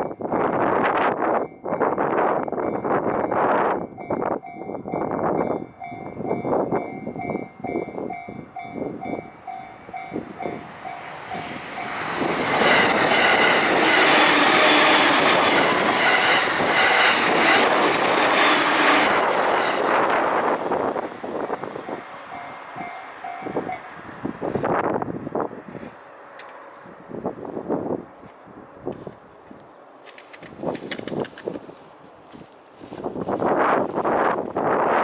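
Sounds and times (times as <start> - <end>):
train passing with rush and clatter: 0.0 - 35.0
crossing warning bell ringing: 1.3 - 24.3, 30.4 - 30.9
train wheels clacking over rail joints: 10.0 - 20.4.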